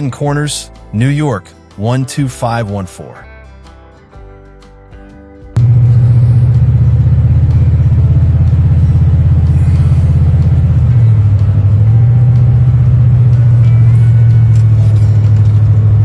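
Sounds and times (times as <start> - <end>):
car engine rumbling: 5.6 - 16.0.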